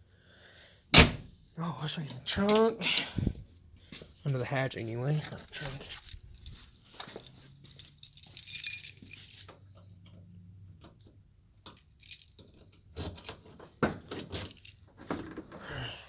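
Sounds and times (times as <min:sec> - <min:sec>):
keys jingling: 0:05.1 - 0:09.6, 0:11.6 - 0:13.6, 0:14.2 - 0:15.0.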